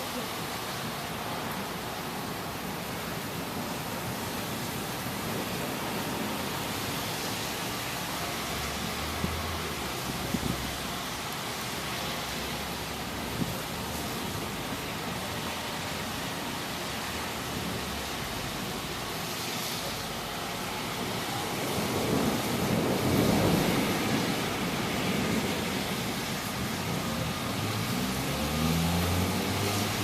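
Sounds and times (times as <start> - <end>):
steady rain hiss: 0.0 - 30.0
low thunder rumble: 20.8 - 28.2.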